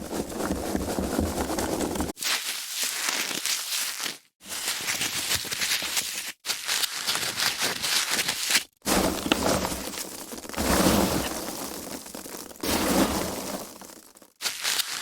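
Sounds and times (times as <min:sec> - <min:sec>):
foam packaging crinkling: 0:00.0 - 0:15.0.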